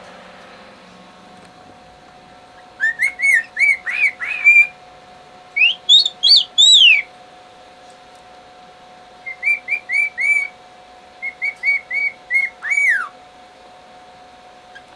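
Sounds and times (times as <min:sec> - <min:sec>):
cockatiel whistling a tune: 0:02.6 - 0:04.8, 0:05.6 - 0:07.1, 0:09.2 - 0:10.6, 0:11.2 - 0:13.2.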